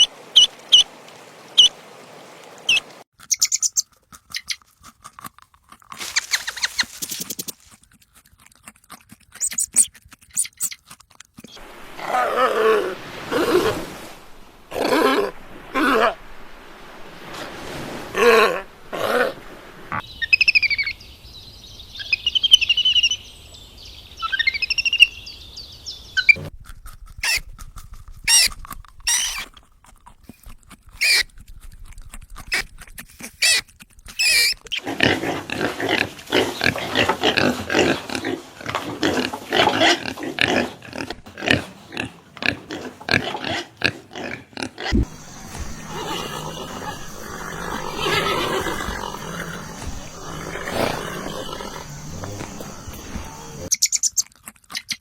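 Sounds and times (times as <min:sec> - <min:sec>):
rapid grunting and squealing calls: 0:29.1 - 0:29.5, 0:31.0 - 0:31.3, 0:32.5 - 0:55.0
short animal calls: 0:44.9 - 0:53.7
warbling bird-like song: 0:45.0 - 0:54.0.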